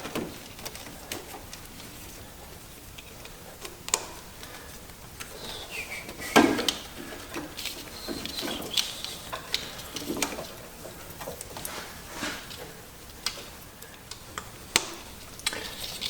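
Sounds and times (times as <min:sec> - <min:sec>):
rubbery squeaks: 0:05.3 - 0:11.1.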